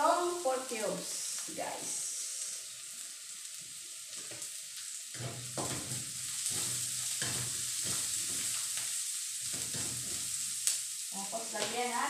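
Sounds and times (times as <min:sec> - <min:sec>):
meat sizzling in a wok: 0:00.0 - 0:12.0
spatula scraping in a wok: 0:05.1 - 0:10.7.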